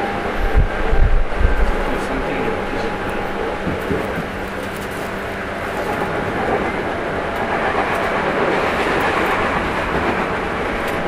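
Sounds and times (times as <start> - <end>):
train wheels rumbling on rail: 0.0 - 11.0
faint rail-joint clicks: 7.3 - 11.0.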